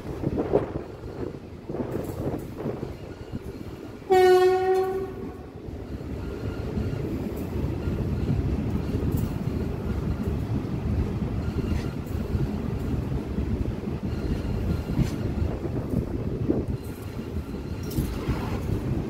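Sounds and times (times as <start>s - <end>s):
moving train rumble: 0.0s - 19.0s
train horn: 4.0s - 5.6s.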